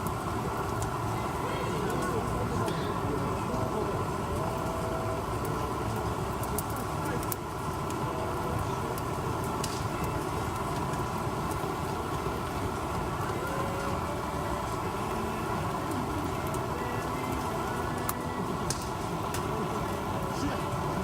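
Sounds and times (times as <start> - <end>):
faint distant voices: 0.0 - 21.0
firewood crackling in a stove: 0.0 - 21.0.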